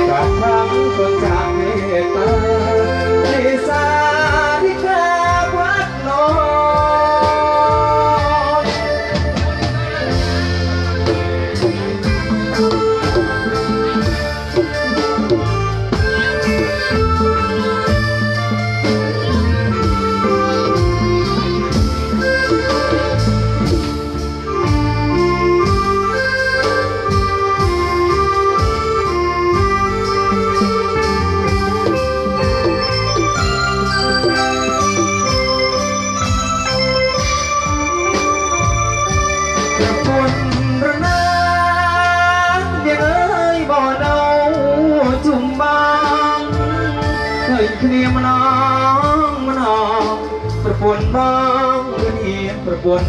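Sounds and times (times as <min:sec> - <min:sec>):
band playing instrumental music: 0:00.0 - 0:53.0
bass: 0:00.0 - 0:53.0
sustained melody line: 0:00.0 - 0:53.0
drum beat: 0:06.3 - 0:29.0, 0:29.6 - 0:41.4.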